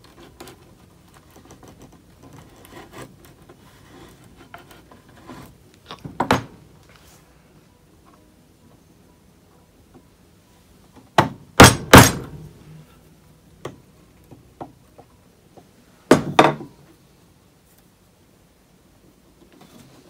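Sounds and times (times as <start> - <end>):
chisel knocked into wood: 11.2 - 12.3, 16.1 - 16.7.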